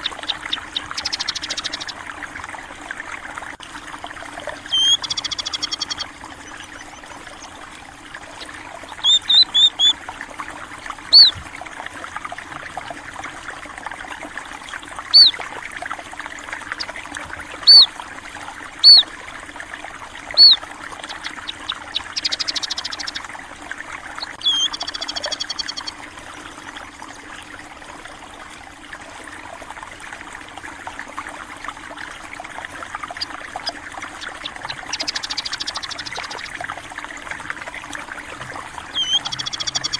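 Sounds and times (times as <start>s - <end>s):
small birds chirping: 0.0s - 2.1s, 4.6s - 7.6s, 8.4s - 10.0s, 11.0s - 11.4s, 15.1s - 15.4s, 16.6s - 18.0s, 18.8s - 19.1s, 20.2s - 23.3s, 24.1s - 26.0s, 33.0s - 36.7s, 38.8s - 39.9s
stream trickling: 0.0s - 39.9s
short buzzy bird trills: 4.6s - 7.4s, 8.9s - 10.0s, 11.1s - 11.4s, 15.1s - 15.4s, 17.7s - 17.9s, 18.8s - 19.1s, 20.3s - 23.2s, 24.2s - 26.0s, 33.0s - 36.6s, 38.9s - 39.9s.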